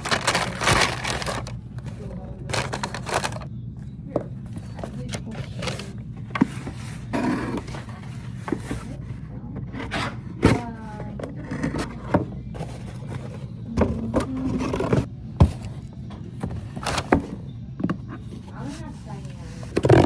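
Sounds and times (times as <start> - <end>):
packaging scraping and rustling: 0.0 - 3.5, 4.5 - 17.4, 18.1 - 20.0.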